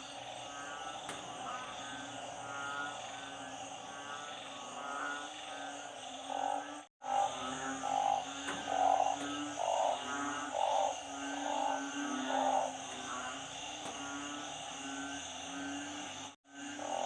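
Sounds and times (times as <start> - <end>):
chorus of frogs: 0.0 - 17.0
frog calling loudly: 0.0 - 17.0.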